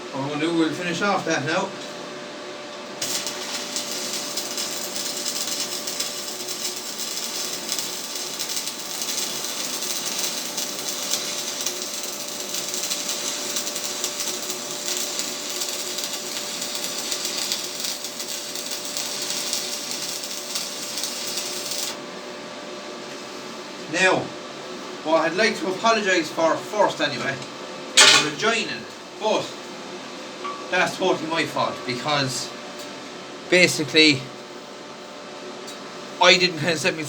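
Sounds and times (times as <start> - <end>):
welding arc crackling and hissing: 3.0 - 22.0, 28.0 - 28.9, 36.2 - 37.0.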